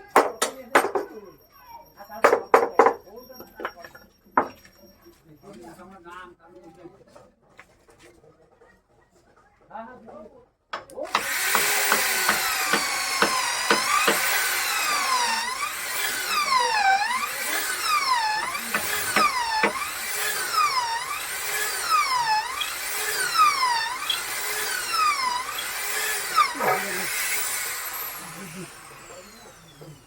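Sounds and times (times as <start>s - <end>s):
power tool motor whining: 11.0s - 30.0s.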